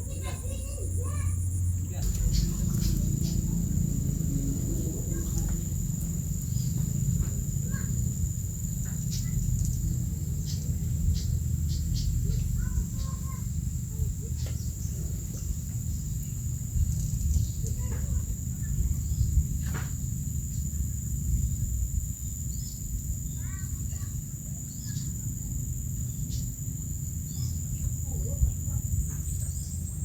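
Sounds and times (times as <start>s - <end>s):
thin high-pitched hum: 0.0s - 20.6s
low steady rumble: 0.0s - 30.0s
bird chirps: 1.8s - 20.8s, 22.5s - 25.4s.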